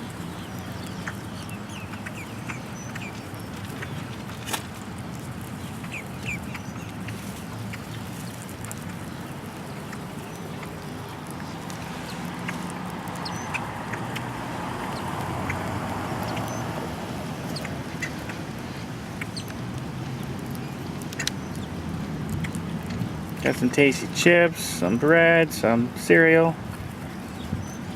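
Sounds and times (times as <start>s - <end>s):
birds squawking and chirping: 0.1s - 4.5s, 5.5s - 23.2s.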